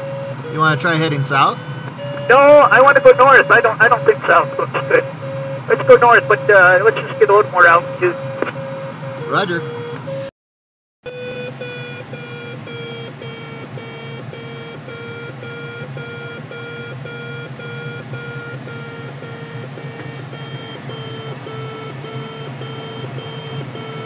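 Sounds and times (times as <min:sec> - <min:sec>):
cockpit airflow noise: 0:00.0 - 0:10.3
variometer beeping rapidly: 0:00.0 - 0:10.3, 0:11.1 - 0:24.0.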